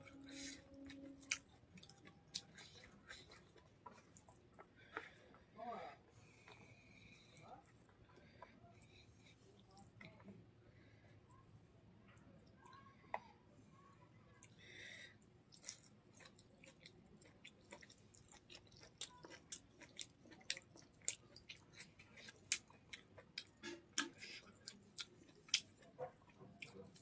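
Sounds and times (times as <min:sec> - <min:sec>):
chewing with mouth clicks: 0:00.1 - 0:05.5, 0:06.1 - 0:10.4, 0:15.5 - 0:27.0.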